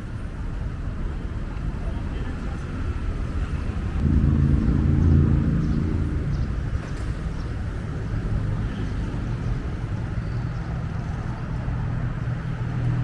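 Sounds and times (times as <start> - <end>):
low street traffic rumble: 0.0 - 13.0
vehicle engine passing by: 4.0 - 8.0.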